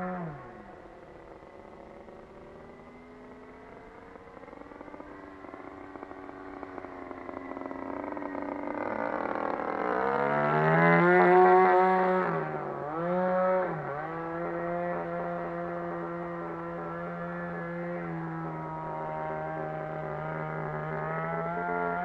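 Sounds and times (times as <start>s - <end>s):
model aircraft engine revving: 0.0s - 22.0s.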